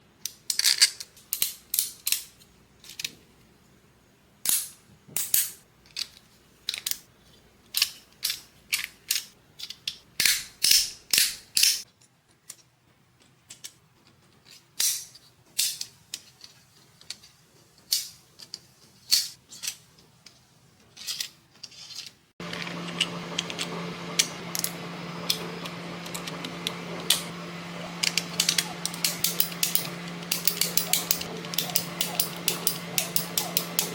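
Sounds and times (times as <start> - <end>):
steady hum: 22.4 - 33.9.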